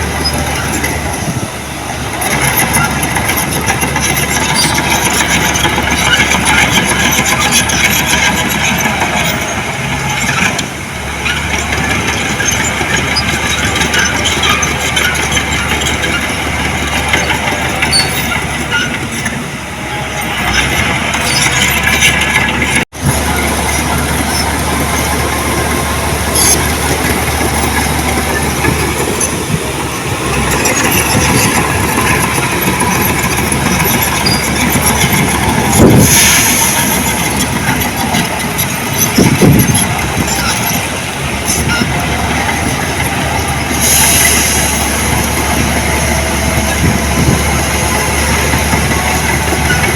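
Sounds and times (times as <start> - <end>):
heavy diesel machinery running: 0.0 - 49.9.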